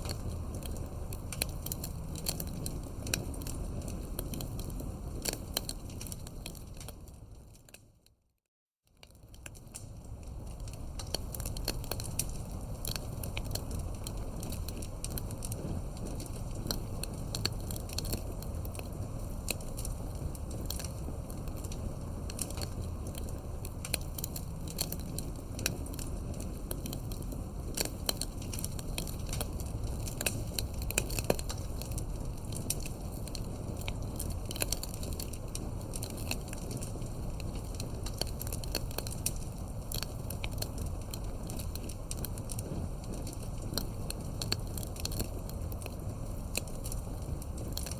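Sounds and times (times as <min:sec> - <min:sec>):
campfire crackling and popping: 0:00.0 - 0:07.9, 0:09.0 - 0:47.9.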